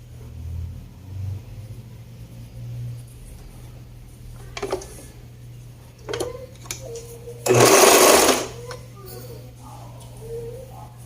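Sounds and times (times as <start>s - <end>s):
sewing machine stitching: 7.4s - 8.6s.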